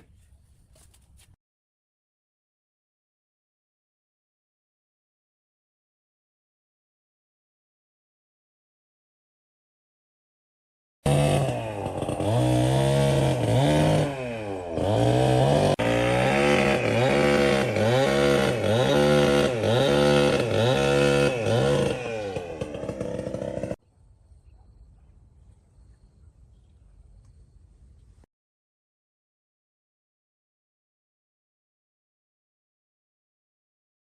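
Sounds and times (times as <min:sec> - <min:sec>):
chainsaw engine revving: 0:11.1 - 0:23.8
faint low hum: 0:23.8 - 0:28.2.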